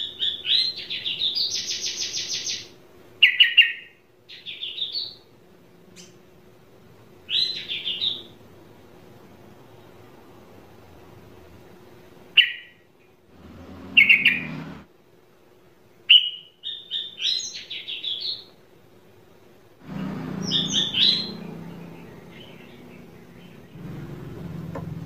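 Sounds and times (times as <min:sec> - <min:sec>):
songbird chirping: 0:00.0 - 0:06.3, 0:07.2 - 0:08.4, 0:12.3 - 0:14.9, 0:16.1 - 0:18.6, 0:19.8 - 0:25.0.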